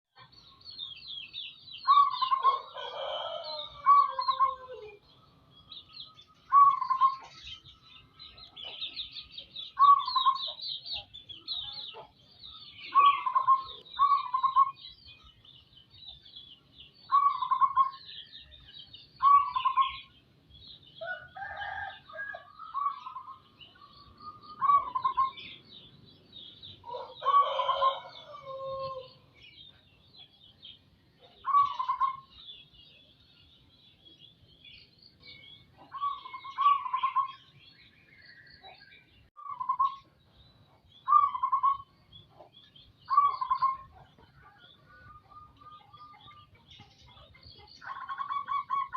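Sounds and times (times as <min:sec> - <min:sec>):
small birds chirping: 0:00.1 - 0:48.9
dove cooing: 0:01.9 - 0:05.0, 0:06.5 - 0:07.4, 0:09.8 - 0:10.6, 0:12.8 - 0:14.8, 0:17.1 - 0:18.0, 0:22.7 - 0:25.6, 0:26.9 - 0:29.1, 0:31.2 - 0:32.4, 0:35.8 - 0:37.4, 0:41.1 - 0:41.9, 0:43.1 - 0:46.4, 0:47.8 - 0:48.9.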